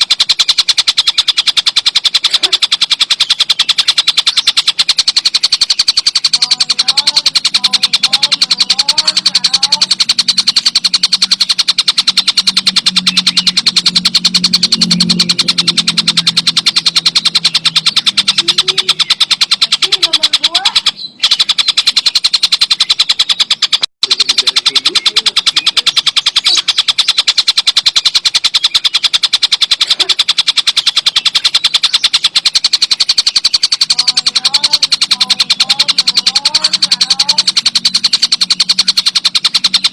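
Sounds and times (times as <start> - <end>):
bird rapid rattling trill: 0.0 - 39.9.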